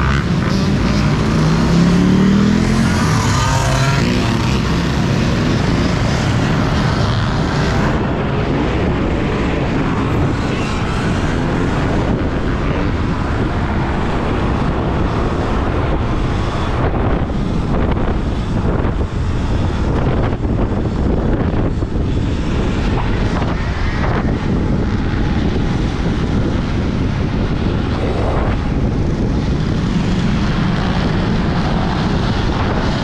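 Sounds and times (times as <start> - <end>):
vehicle engine rising in pitch: 0.0 - 8.0
road noise: 0.0 - 33.0
wind rushing over microphone: 0.0 - 33.0.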